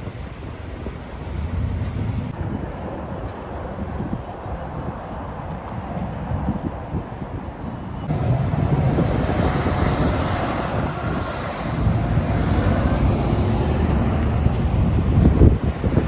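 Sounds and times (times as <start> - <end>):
wind on microphone: 0.0 - 16.0
truck engine rumble: 8.0 - 16.0.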